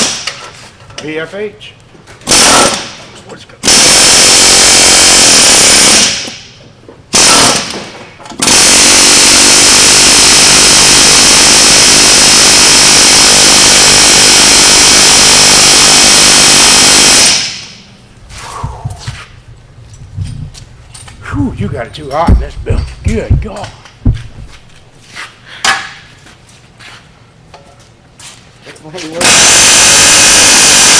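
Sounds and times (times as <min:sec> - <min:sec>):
pneumatic air tool hammering: 0:00.0 - 0:00.5, 0:02.2 - 0:03.0, 0:03.6 - 0:17.8, 0:25.6 - 0:26.0, 0:29.2 - 0:30.9.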